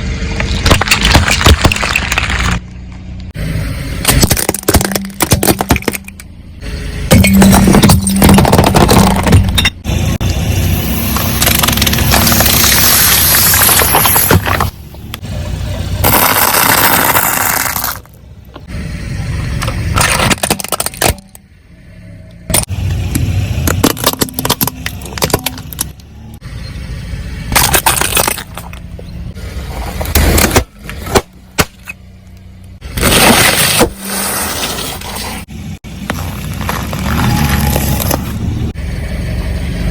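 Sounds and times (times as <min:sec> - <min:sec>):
car engine running: 0:00.0 - 0:33.2
tyres crushing objects: 0:00.4 - 0:02.7, 0:04.0 - 0:06.3, 0:07.1 - 0:09.8, 0:11.1 - 0:14.8, 0:16.0 - 0:18.2, 0:19.6 - 0:21.4, 0:22.5 - 0:26.0, 0:27.5 - 0:29.0, 0:29.6 - 0:32.0, 0:32.8 - 0:38.4.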